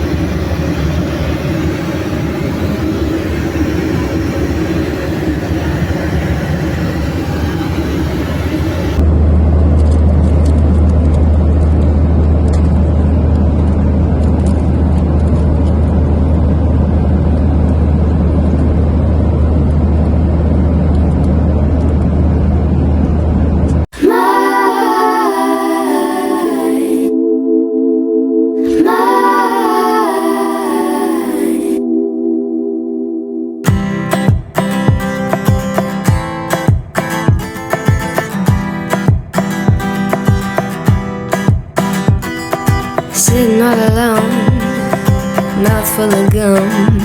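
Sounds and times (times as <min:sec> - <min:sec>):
vehicle interior rumble and road noise: 0:05.3 - 0:23.9
pop music with singing: 0:24.0 - 0:27.1, 0:28.6 - 0:31.9, 0:36.7 - 0:47.0.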